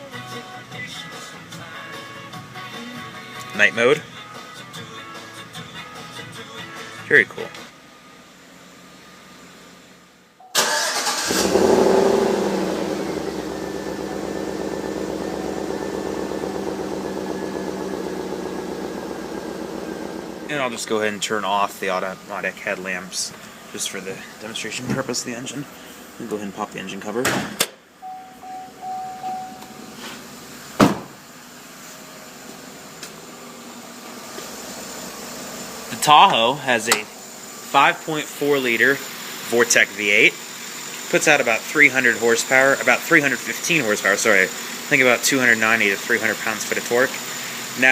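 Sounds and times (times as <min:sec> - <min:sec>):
car engine starting and idling: 0:10.5 - 0:27.2, 0:28.0 - 0:47.9
loud thump: 0:30.8 - 0:31.2.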